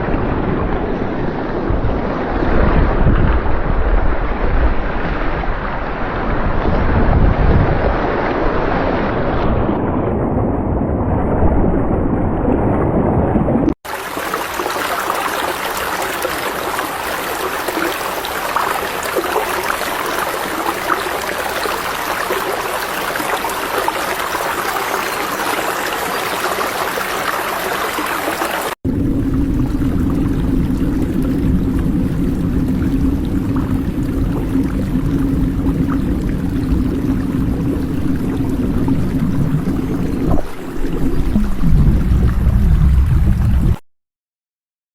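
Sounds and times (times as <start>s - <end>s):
running water: 13.8s - 43.8s.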